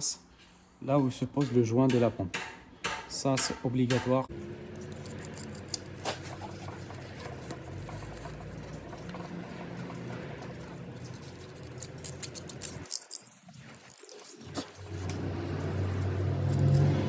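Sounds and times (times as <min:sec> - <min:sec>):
scraping gasket residue off metal: 0:04.3 - 0:17.0.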